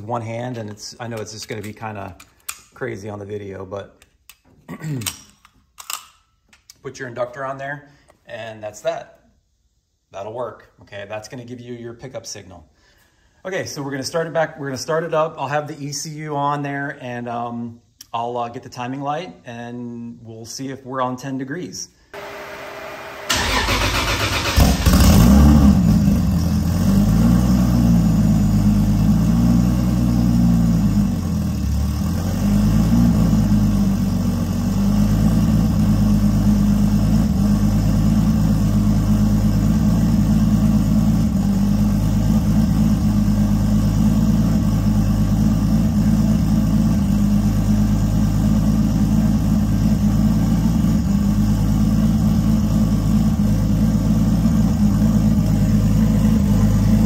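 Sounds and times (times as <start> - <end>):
car engine idling: 22.2 - 27.2, 27.9 - 57.0
engine starter cranking: 23.2 - 25.5.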